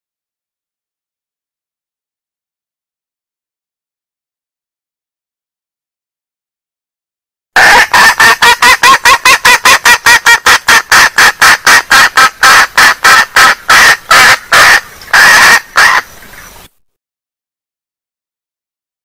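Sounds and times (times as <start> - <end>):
junglefowl hen clucking call: 7.6 - 16.5.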